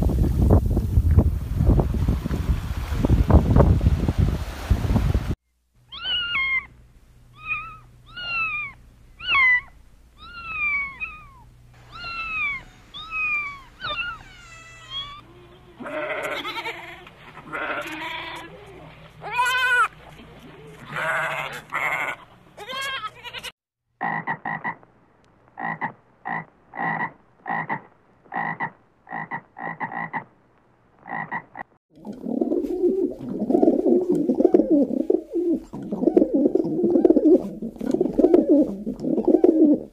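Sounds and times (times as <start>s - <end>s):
kittens meowing: 5.9s - 6.7s, 7.3s - 19.9s
short clipped animal calls: 5.9s - 6.7s, 7.3s - 16.6s
sheep bleating: 15.2s - 19.9s, 20.8s - 23.5s
pigeons cooing: 32.0s - 39.9s.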